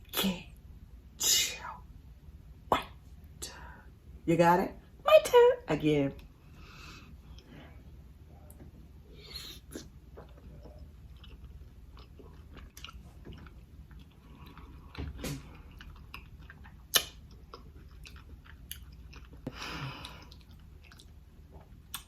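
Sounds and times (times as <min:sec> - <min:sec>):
person chewing food: 0:08.5 - 0:22.0
wet mouth clicks: 0:16.9 - 0:17.6.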